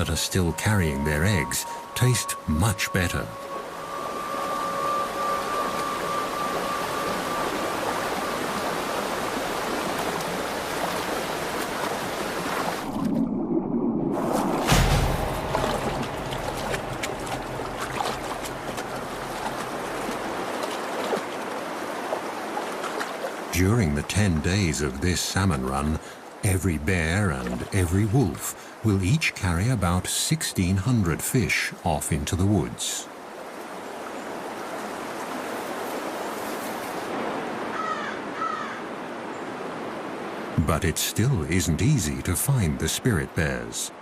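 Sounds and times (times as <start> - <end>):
stream rushing over rocks: 5.7 - 13.1, 14.2 - 29.5.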